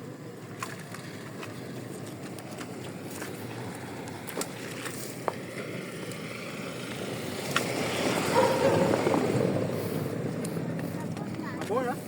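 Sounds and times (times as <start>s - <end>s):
car driving slowly past: 0.0s - 12.0s.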